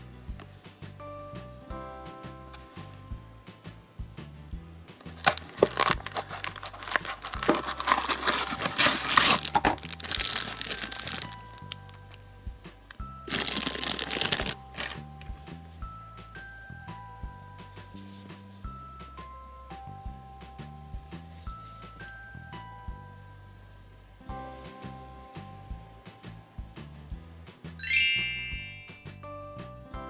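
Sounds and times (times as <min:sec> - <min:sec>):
light background music: 0:00.0 - 0:30.0
plastic packaging crinkling: 0:05.2 - 0:11.3, 0:13.3 - 0:14.6.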